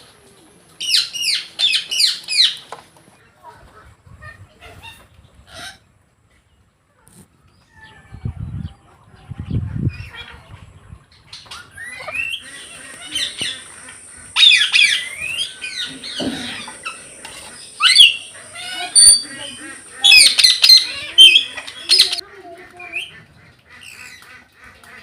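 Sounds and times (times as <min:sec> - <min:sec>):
parakeet squawking: 0:11.8 - 0:22.2.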